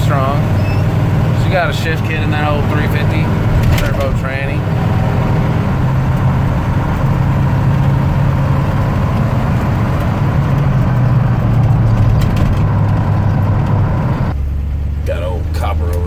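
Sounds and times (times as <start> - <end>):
pickup engine running: 0.0 - 16.0
road noise: 0.0 - 16.0.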